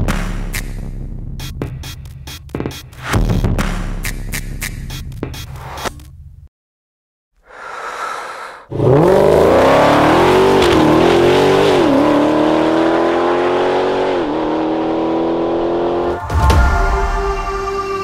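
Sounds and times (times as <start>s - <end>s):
car engine at full throttle: 8.7s - 16.3s
engine upshifts: 8.7s - 16.3s.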